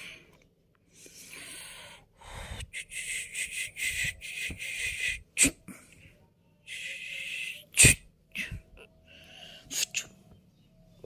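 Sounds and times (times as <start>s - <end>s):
cat sneezing: 5.3s - 5.8s, 7.7s - 8.1s.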